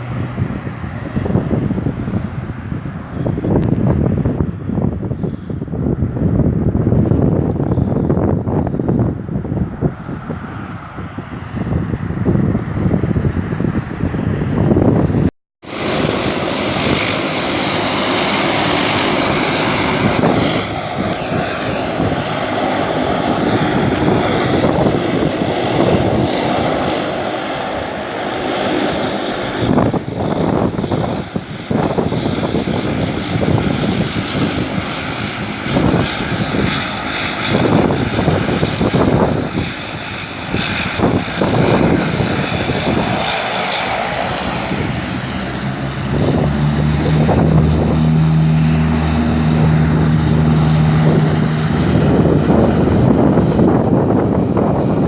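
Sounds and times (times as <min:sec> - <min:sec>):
airliner engines running loudly: 0:00.0 - 0:55.0
higher whine rising: 0:07.1 - 0:13.7, 0:31.9 - 0:54.7.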